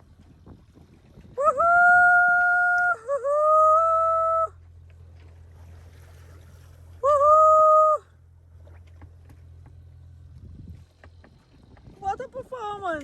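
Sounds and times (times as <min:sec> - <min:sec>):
low engine hum: 0:00.0 - 0:13.0
person whooping: 0:01.4 - 0:04.5, 0:07.0 - 0:08.0.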